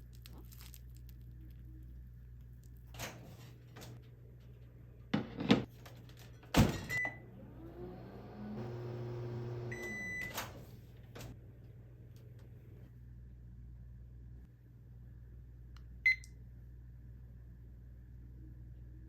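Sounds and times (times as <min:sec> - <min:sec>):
microwave oven humming: 0:06.5 - 0:19.0.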